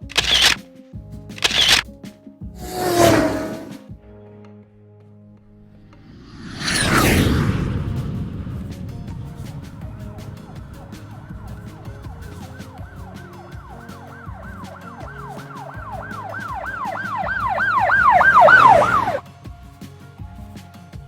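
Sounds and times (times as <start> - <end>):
emergency vehicle siren wailing: 9.8 - 19.2.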